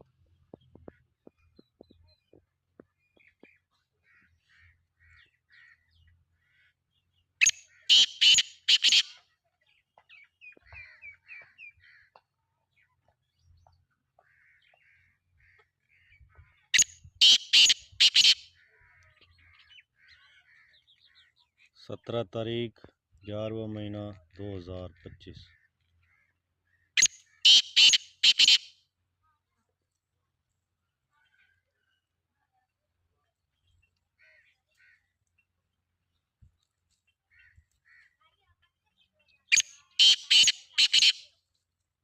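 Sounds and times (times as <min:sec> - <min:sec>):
small birds chirping: 0:00.1 - 0:22.6, 0:23.2 - 0:28.7, 0:33.4 - 0:41.4
francolin calling: 0:07.4 - 0:09.1, 0:16.8 - 0:18.4, 0:27.0 - 0:28.7, 0:39.5 - 0:41.2.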